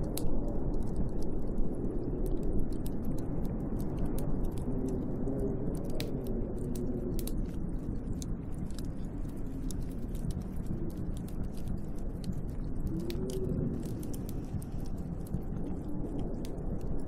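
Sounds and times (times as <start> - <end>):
small sharp ticks: 0.0 - 17.0
snowstorm wind blowing: 0.0 - 17.0.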